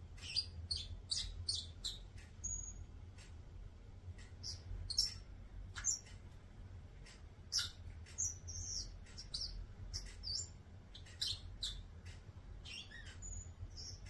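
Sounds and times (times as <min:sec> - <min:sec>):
parrot twittering: 0:00.2 - 0:02.8, 0:07.5 - 0:11.8, 0:12.6 - 0:14.0.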